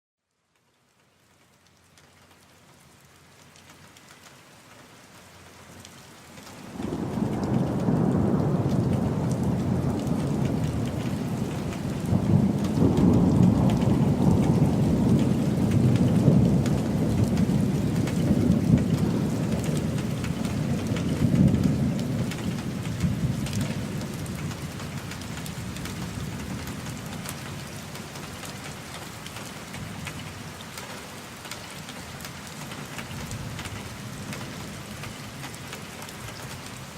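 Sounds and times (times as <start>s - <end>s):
rain hiss: 0.5s - 36.9s
rolling thunder: 6.7s - 27.1s.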